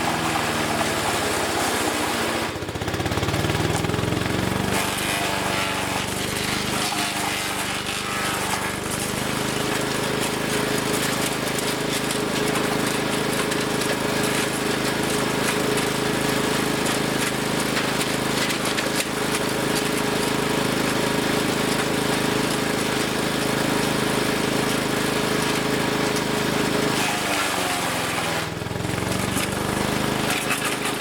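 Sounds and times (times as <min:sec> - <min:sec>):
wood chipper engine running: 0:00.0 - 0:31.0
chipping mechanism clatter: 0:04.6 - 0:26.3, 0:28.9 - 0:31.0.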